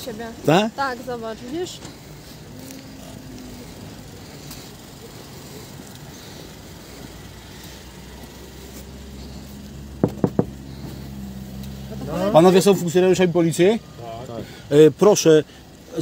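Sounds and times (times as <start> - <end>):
car engine idling: 0.0 - 16.0
knocks on car window: 10.0 - 10.6.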